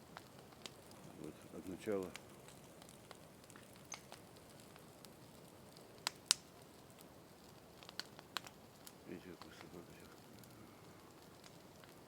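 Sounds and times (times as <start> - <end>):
bonfire crackling: 0.0 - 12.0
sharp pops: 1.7 - 4.3
small snaps: 2.1 - 4.8, 6.0 - 6.5, 7.8 - 12.0.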